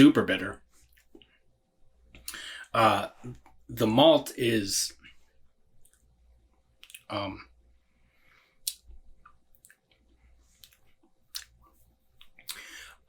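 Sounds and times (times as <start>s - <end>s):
mouth clicks and lip smacks: 6.8s - 7.1s, 8.6s - 12.8s.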